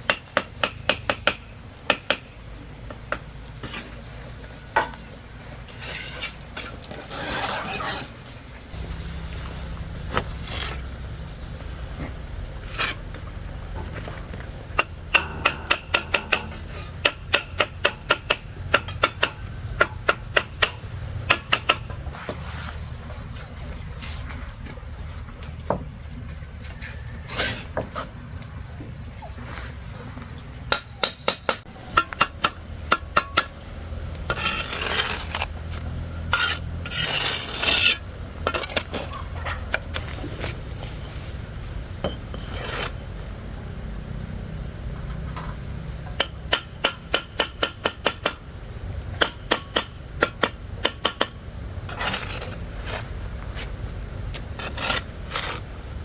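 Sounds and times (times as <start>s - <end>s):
rasping scrapes: 5.7s - 8.2s, 12.6s - 13.1s, 34.3s - 39.1s, 42.3s - 43.0s, 54.6s - 55.7s.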